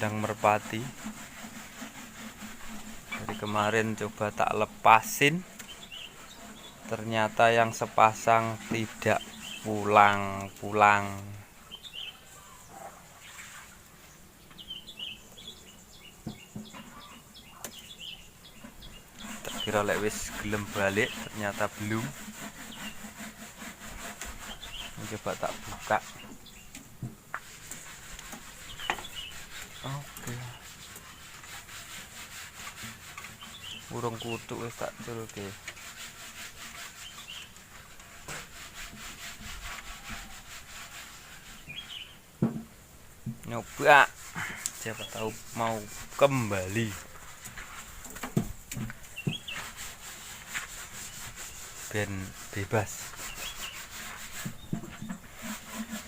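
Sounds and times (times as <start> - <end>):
rapid rhythmic scraping: 0.0 - 11.4, 18.6 - 42.1, 43.4 - 56.0
birds chirping: 3.1 - 23.2, 24.0 - 26.9, 27.8 - 31.4, 33.2 - 35.5, 36.8 - 37.6, 41.4 - 42.2, 43.5 - 47.1, 48.4 - 49.8, 51.0 - 55.2.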